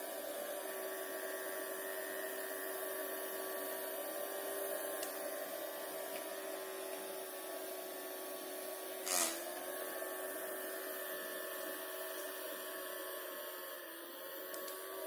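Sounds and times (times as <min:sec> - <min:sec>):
small motor whining: 0:09.0 - 0:10.9.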